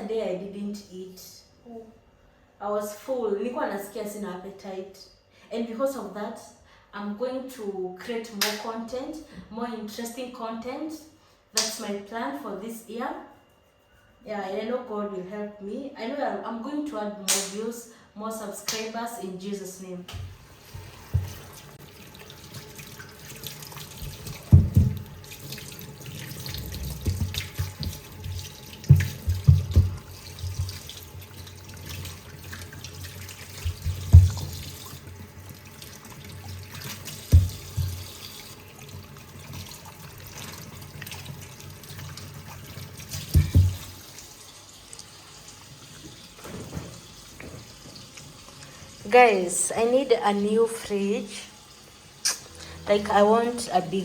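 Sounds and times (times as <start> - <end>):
tap water running into sink: 20.1 - 49.0
items clunking against sink: 43.2 - 44.0.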